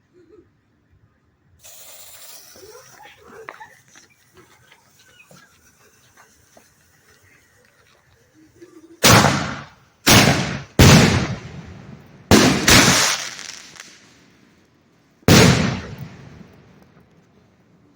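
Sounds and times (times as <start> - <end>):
firework bangs: 9.0 - 14.4, 15.2 - 17.2.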